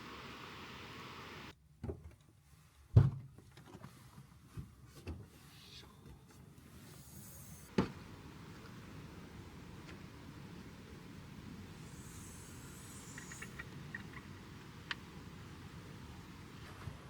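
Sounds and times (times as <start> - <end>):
steady hiss: 0.0 - 1.5, 6.8 - 17.0.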